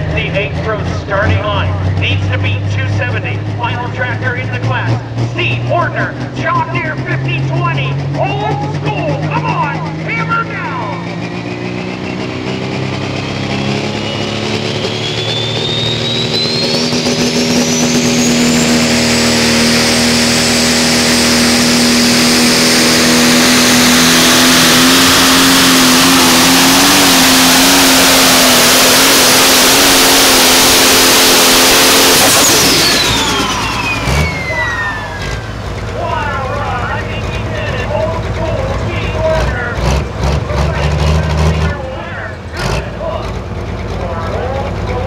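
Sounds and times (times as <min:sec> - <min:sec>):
tractor diesel engine at full throttle: 0:00.0 - 0:45.0
high turbo whistle: 0:13.5 - 0:28.0, 0:29.7 - 0:35.6.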